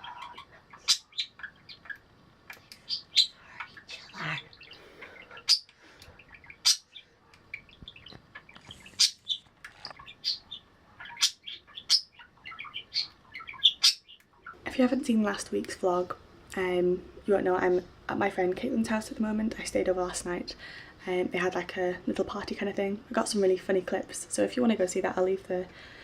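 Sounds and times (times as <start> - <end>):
bird chirping: 0.0 - 14.6.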